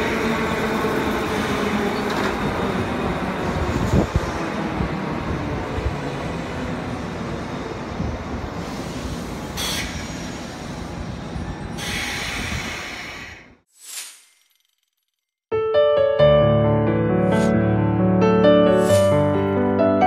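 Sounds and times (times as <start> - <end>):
train wheels and motors: 0.0 - 13.6.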